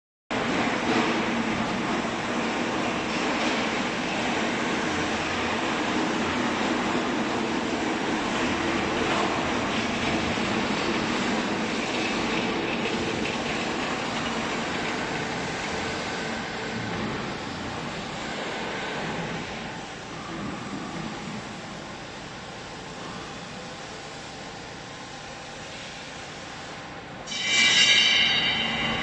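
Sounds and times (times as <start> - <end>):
hydraulic baler running: 0.4 - 22.0.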